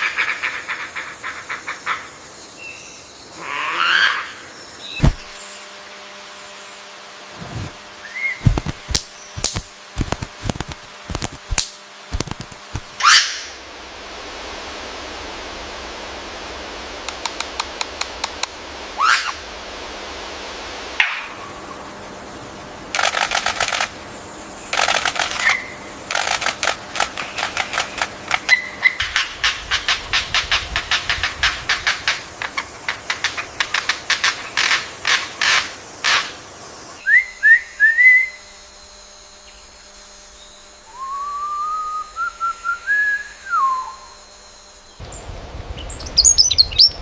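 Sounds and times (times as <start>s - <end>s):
harsh rattling bird calls: 0.0s - 5.9s, 8.0s - 13.6s, 19.0s - 19.4s, 21.0s - 40.9s, 43.8s - 47.0s
bird chips and clicks: 8.4s - 13.0s, 23.0s - 24.0s, 24.7s - 36.2s
rising whistled bird calls: 37.0s - 38.5s, 40.4s - 44.6s, 45.8s - 47.0s.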